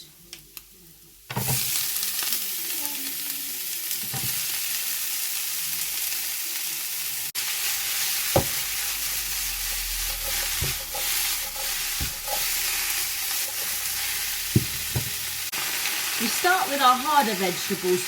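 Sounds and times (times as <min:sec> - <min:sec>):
vegetables sizzling in a pan: 0:00.0 - 0:18.0
utensil knocking against pan: 0:10.5 - 0:12.6, 0:14.6 - 0:15.2.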